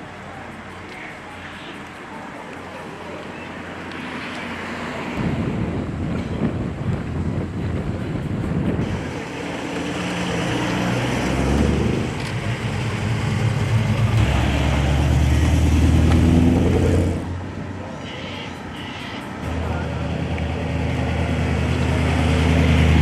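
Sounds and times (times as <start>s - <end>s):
car engine revving: 8.8s - 17.5s.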